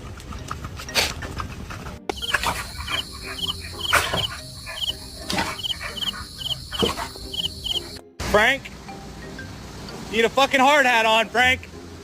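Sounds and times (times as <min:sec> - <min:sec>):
high-pitched animal chirps: 0:02.1 - 0:08.0.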